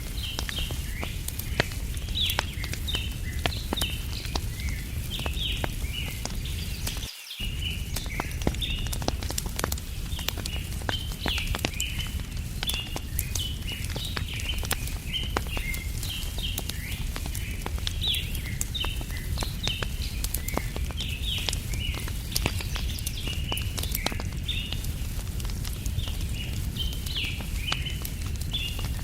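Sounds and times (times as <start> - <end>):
small birds chirping: 0.0 - 29.0
wood fire crackling: 0.0 - 29.0.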